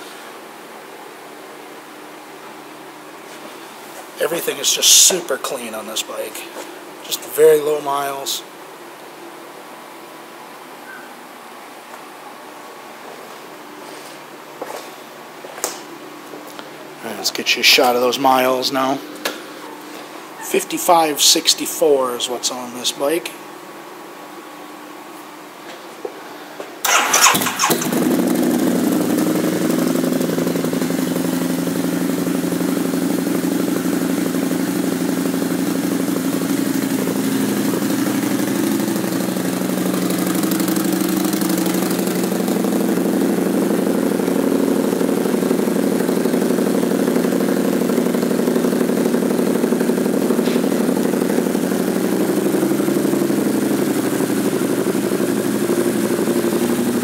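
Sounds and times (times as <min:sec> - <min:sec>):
motorcycle engine idling: 0:26.8 - 0:57.0.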